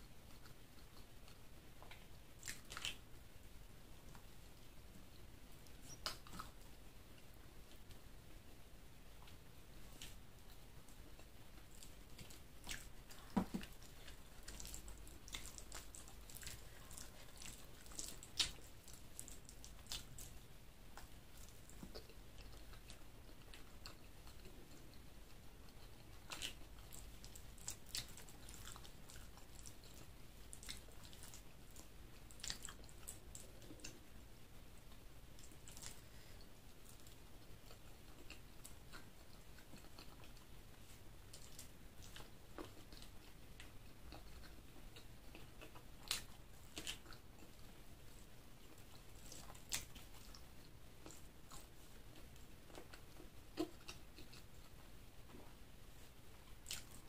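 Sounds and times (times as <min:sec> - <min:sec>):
chewing and wet mouth sounds: 0:00.0 - 0:03.1, 0:04.0 - 0:08.5, 0:09.1 - 0:57.0.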